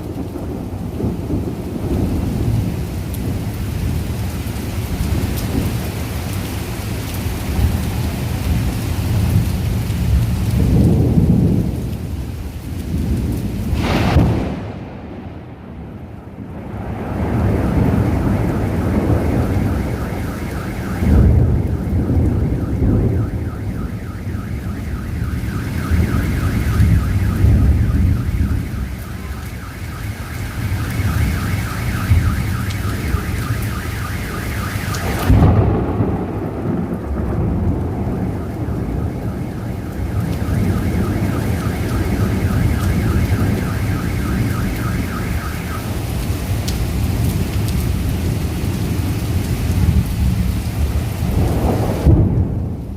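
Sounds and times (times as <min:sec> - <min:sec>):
rumbling thunder: 0:00.0 - 0:06.2, 0:07.4 - 0:52.9
heavy rain: 0:00.0 - 0:52.9
sharp thunderclap: 0:09.1 - 0:12.0, 0:12.8 - 0:48.0, 0:48.8 - 0:52.9
car alarm pulsing tone: 0:16.4 - 0:46.4.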